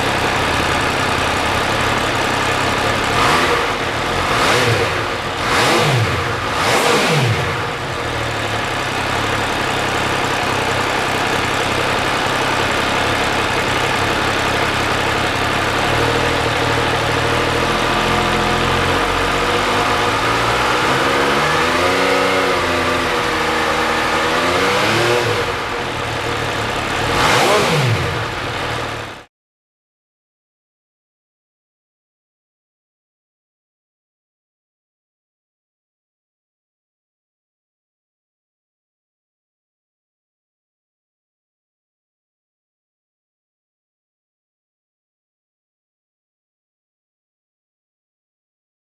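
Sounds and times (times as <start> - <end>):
motorcycle engine revving: 0.0 - 29.3.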